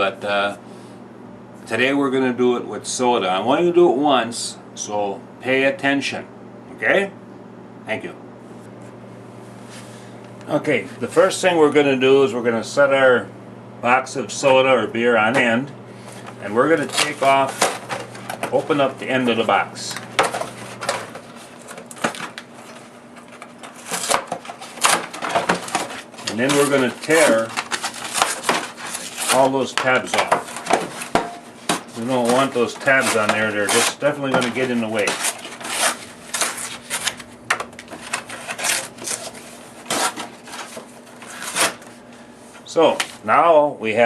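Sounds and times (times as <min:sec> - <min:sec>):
faint steady hum: 0:00.0 - 0:44.0
cardboard tearing: 0:16.8 - 0:18.7, 0:20.2 - 0:41.9.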